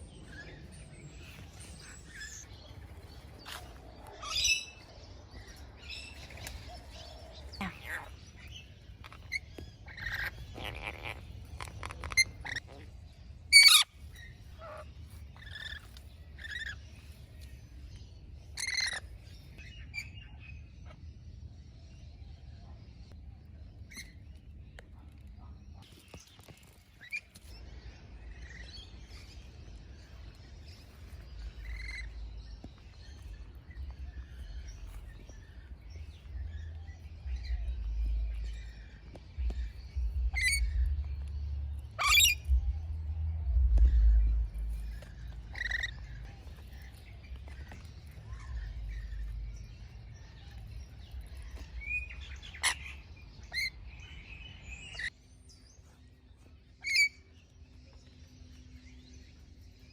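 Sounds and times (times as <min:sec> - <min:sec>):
parrots chirping and calling: 0:00.0 - 0:16.9, 0:18.6 - 0:19.2, 0:31.4 - 0:41.4, 0:42.0 - 0:42.6, 0:43.8 - 0:55.1, 0:56.8 - 0:57.2
low rumble: 0:27.5 - 0:56.5.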